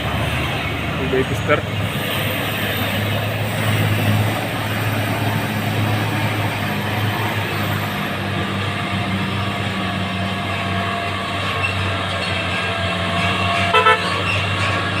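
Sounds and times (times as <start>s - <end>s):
diesel truck engine under load: 0.0s - 15.0s
road noise: 0.0s - 15.0s
vehicle horn toots: 13.7s - 14.2s.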